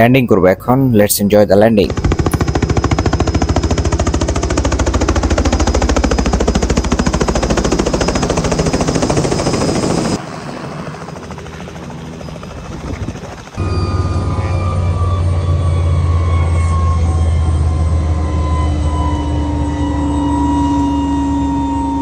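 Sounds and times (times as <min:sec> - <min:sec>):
helicopter rotor beating: 0:01.0 - 0:22.0
steady low drone: 0:13.4 - 0:22.0.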